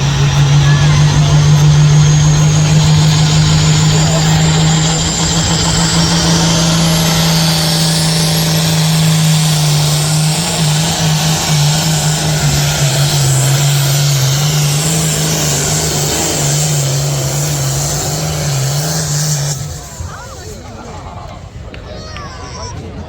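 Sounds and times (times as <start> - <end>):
engine running at high revs: 0.0 - 20.8.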